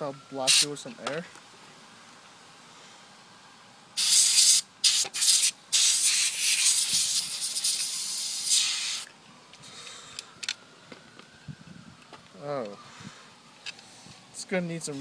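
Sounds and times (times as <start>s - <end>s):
compressed air hissing: 0.5s - 0.7s, 4.0s - 9.1s.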